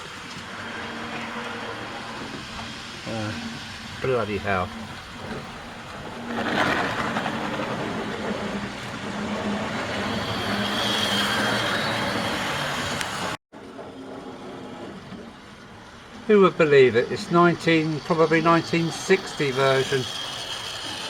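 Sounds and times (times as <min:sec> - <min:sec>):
wheels rattling on rails: 0:00.0 - 0:21.0
model train motor whirring: 0:09.9 - 0:13.4, 0:17.0 - 0:21.0.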